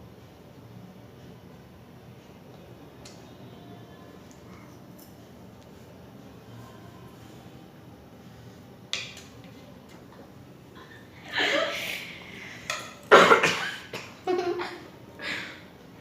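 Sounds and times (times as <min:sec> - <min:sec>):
girl coughing: 0:13.1 - 0:14.8.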